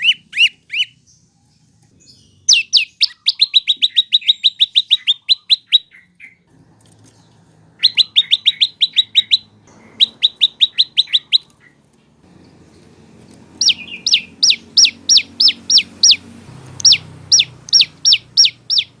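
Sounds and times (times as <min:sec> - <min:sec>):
songbird sharp chirps: 0:00.0 - 0:19.0
bird whistled notes: 0:02.4 - 0:06.4, 0:07.8 - 0:11.5, 0:13.6 - 0:16.2, 0:16.8 - 0:19.0.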